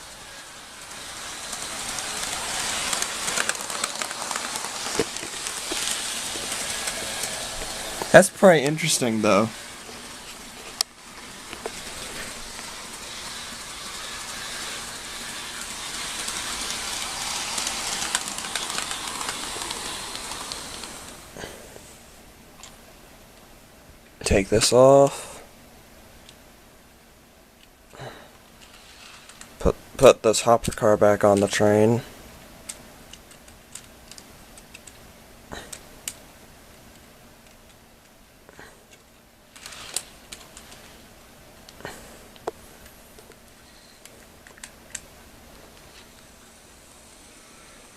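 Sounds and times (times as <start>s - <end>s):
light track clicks: 0.0s - 21.2s
model train motors whirring: 0.0s - 21.4s, 28.6s - 29.5s, 38.9s - 41.2s, 43.2s - 47.9s
model train car clicks: 11.5s - 21.1s.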